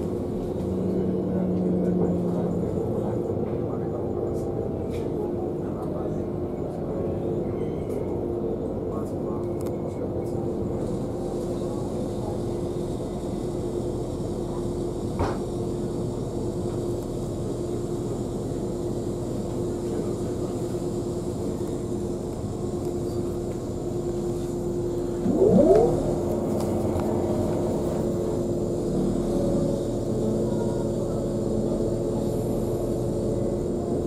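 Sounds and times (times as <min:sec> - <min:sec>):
train hum and rumble: 0:00.0 - 0:34.0
rising whine: 0:25.1 - 0:27.5.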